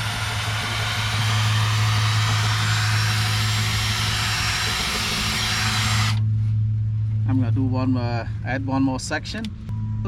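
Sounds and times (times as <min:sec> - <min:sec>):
power drill spinning a brush: 0:00.0 - 0:06.2
constant low hum: 0:00.0 - 0:10.0.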